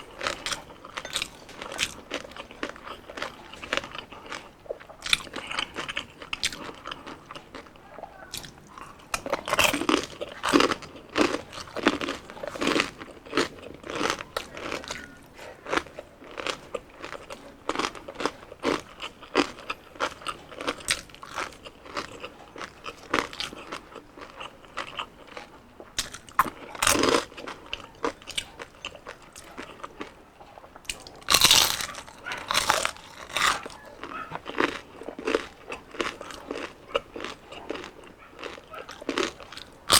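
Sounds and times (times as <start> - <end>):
crunching bites of crispy skin: 30.9 - 39.9.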